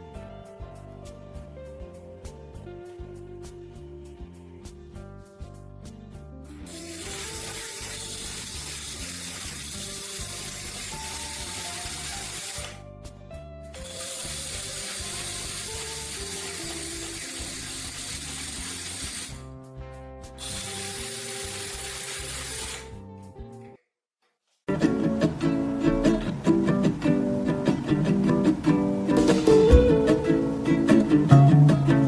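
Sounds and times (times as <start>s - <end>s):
background music: 0.0s - 23.7s, 24.7s - 32.0s
rushing hiss: 6.7s - 12.6s, 13.8s - 19.4s.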